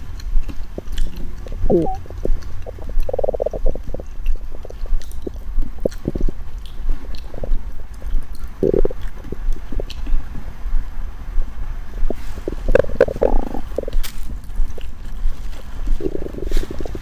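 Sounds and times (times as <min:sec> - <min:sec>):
steady low rumble: 0:00.0 - 0:17.0
bowel gurgles and pops: 0:01.6 - 0:04.4, 0:12.8 - 0:14.0.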